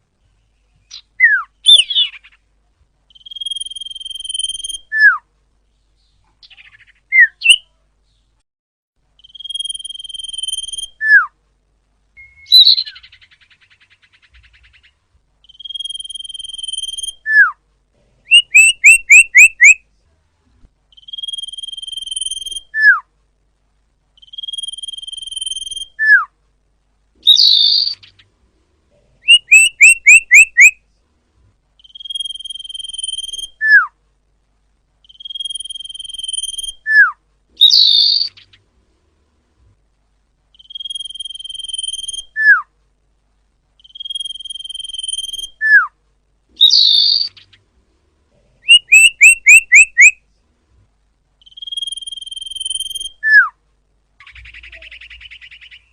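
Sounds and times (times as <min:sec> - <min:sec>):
quick rising bird chirps: 0:18.3 - 0:19.8, 0:29.2 - 0:30.8, 0:46.6 - 0:47.6, 0:48.6 - 0:50.2, 0:51.4 - 0:53.5, 0:54.2 - 0:55.9
raspy bird call: 0:18.3 - 0:19.8, 0:29.2 - 0:30.8, 0:48.7 - 0:50.2
bird whistle with falling note: 0:48.7 - 0:50.1.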